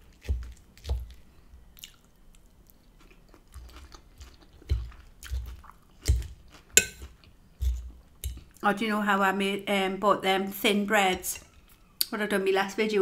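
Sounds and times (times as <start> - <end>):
crunchy chewing of lettuce: 0.0 - 8.5.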